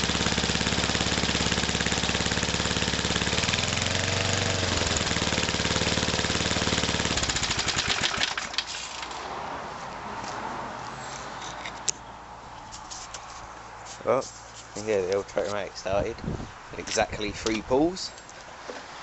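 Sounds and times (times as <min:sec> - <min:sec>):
lawnmower engine running: 0:00.0 - 0:09.2
lawnmower pull start: 0:00.0 - 0:09.2.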